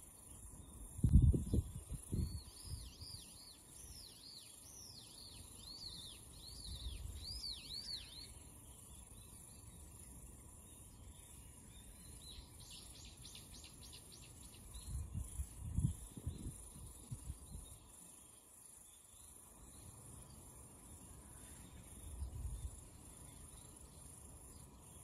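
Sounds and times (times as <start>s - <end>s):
insects hissing: 0.0s - 25.0s
small bird calling: 2.2s - 10.0s.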